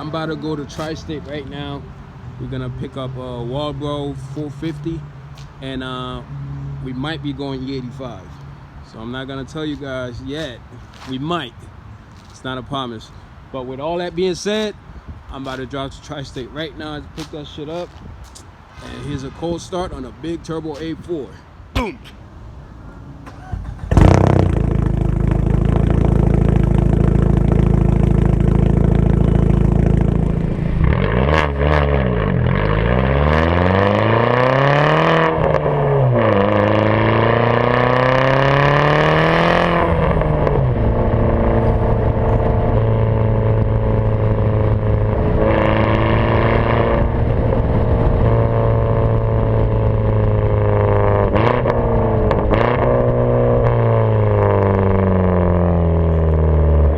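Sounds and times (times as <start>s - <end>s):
car engine starting and revving: 23.2s - 56.9s.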